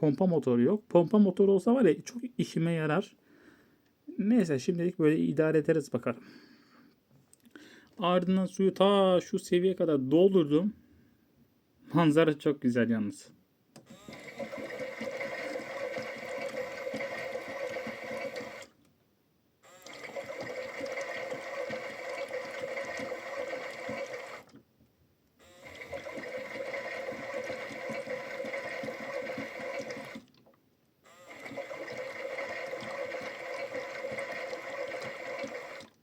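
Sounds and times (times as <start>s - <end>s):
toy washing machine motor whirring: 13.8s - 18.8s, 19.6s - 24.6s, 25.4s - 36.0s.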